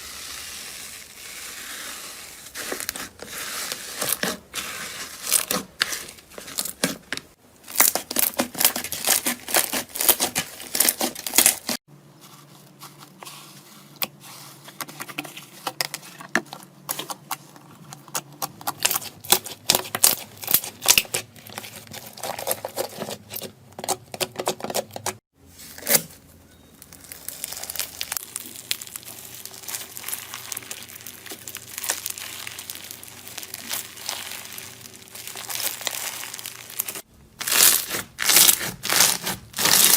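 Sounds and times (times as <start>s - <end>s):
slime crackling and popping: 26.8s - 39.9s.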